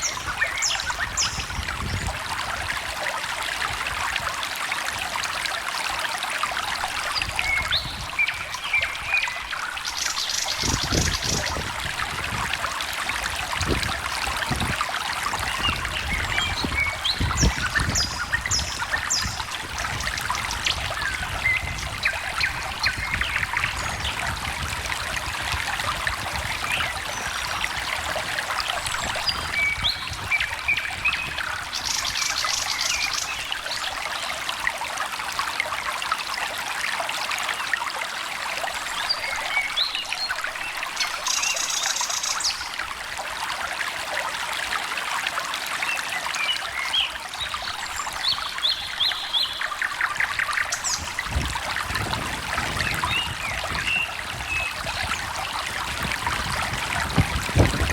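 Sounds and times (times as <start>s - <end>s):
bird calls and chirps: 0.0s - 2.1s, 15.5s - 24.2s, 28.6s - 34.3s, 38.8s - 42.7s, 45.9s - 51.4s
stream trickling and gurgling: 0.0s - 57.9s.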